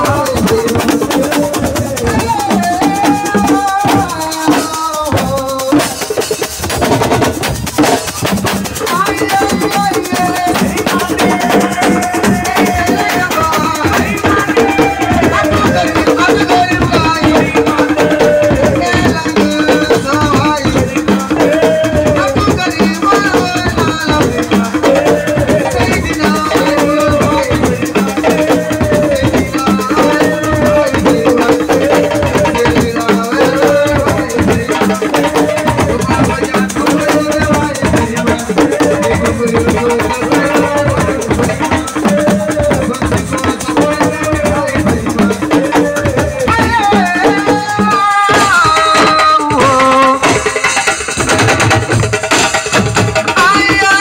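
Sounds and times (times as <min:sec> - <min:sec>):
shaken rattles: 0:00.0 - 0:47.5
hand drumming: 0:00.0 - 0:54.0.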